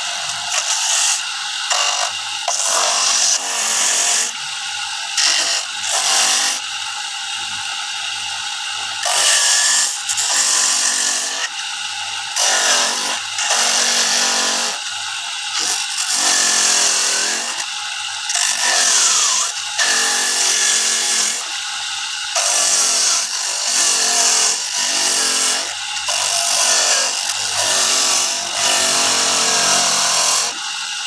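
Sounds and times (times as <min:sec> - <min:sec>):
coconut grating machine running: 0:00.0 - 0:31.0
rasping grating bursts: 0:22.3 - 0:30.8.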